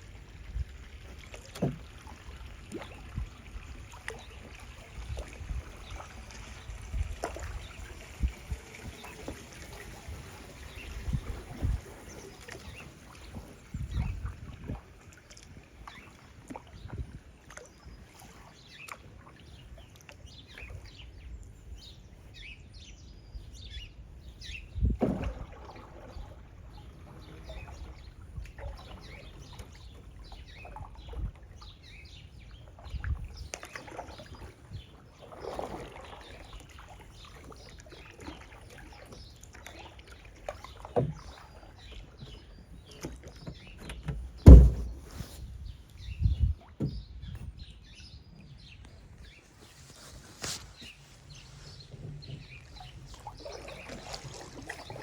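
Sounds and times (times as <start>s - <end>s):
kayak paddling through water: 0.0s - 55.0s
dull knocks: 43.5s - 45.2s.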